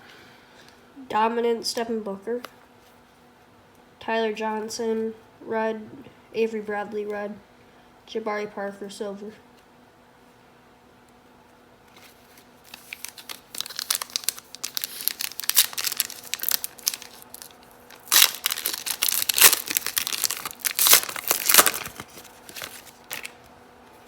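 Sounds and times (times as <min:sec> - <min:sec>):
foil wrapper crinkling and tearing: 0:11.9 - 0:23.5.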